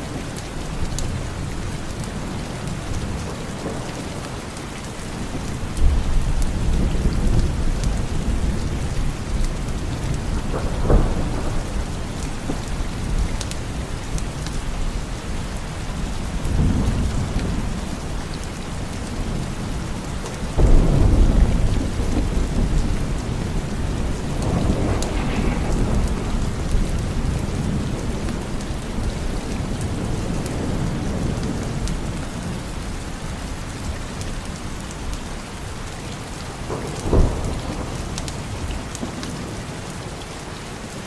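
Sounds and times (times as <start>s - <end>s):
heavy rain: 0.0s - 41.0s
rolling thunder: 0.1s - 39.9s
sharp thunderclap: 5.2s - 32.5s, 36.6s - 39.5s.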